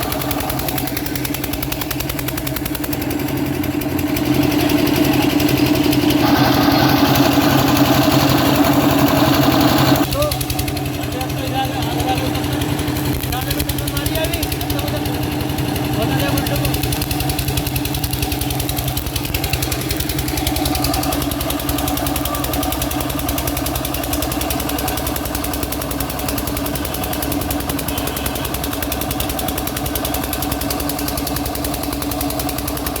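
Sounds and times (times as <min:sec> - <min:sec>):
generator engine running: 0:00.0 - 0:33.0.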